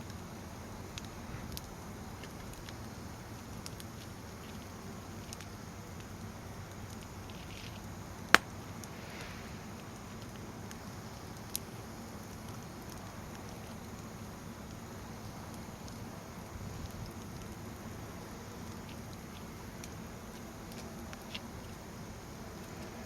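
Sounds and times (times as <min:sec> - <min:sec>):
firewood burning and crackling: 0:00.0 - 0:23.0
sharp pop from fire: 0:08.3 - 0:09.9.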